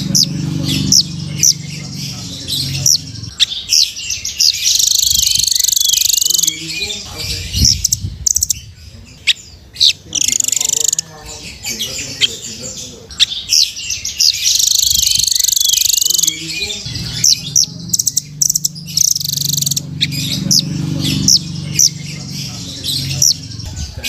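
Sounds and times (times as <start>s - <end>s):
low droning: 0.0s - 3.3s, 16.8s - 24.0s
bird chirping and trilling: 0.0s - 24.0s.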